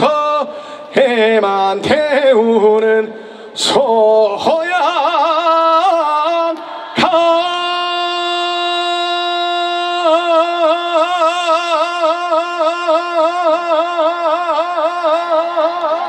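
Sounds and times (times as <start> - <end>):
man singing long note: 0.0 - 16.0
singer breath: 0.5 - 1.0, 3.1 - 3.6, 6.6 - 7.0.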